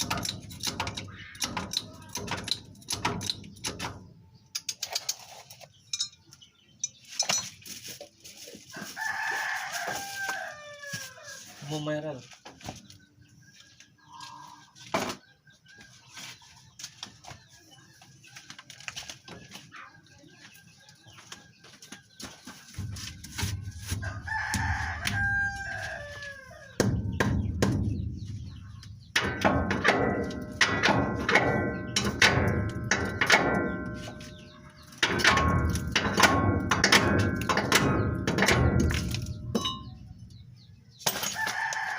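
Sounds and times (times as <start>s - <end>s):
rooster crowing: 8.8s - 11.5s, 24.0s - 26.8s, 41.4s - 41.9s.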